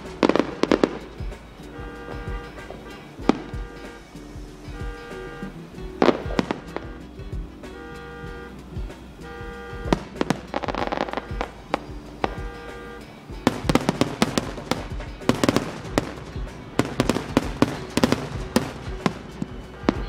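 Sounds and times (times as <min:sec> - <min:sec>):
fireworks bangs and crackles: 0:00.0 - 0:04.1, 0:06.0 - 0:07.0, 0:09.8 - 0:12.8, 0:13.4 - 0:20.0
background music: 0:00.0 - 0:20.0.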